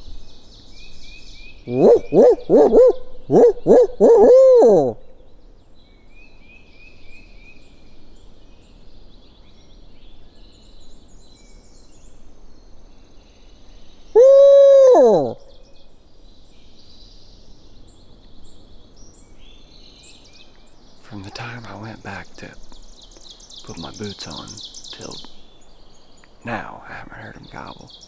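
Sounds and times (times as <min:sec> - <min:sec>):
small birds chirping: 0:00.0 - 0:06.0, 0:08.6 - 0:28.0
owl hooting call: 0:01.7 - 0:05.2, 0:14.1 - 0:15.7.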